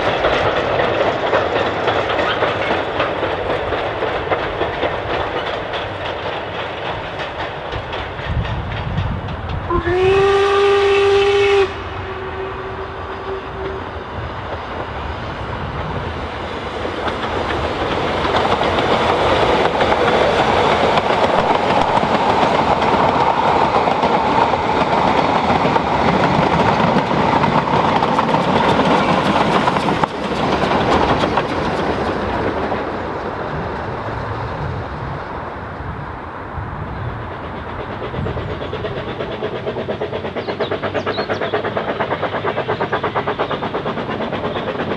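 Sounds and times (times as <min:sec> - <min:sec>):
train running by: 0:00.0 - 0:44.9
train whistle: 0:09.7 - 0:14.2.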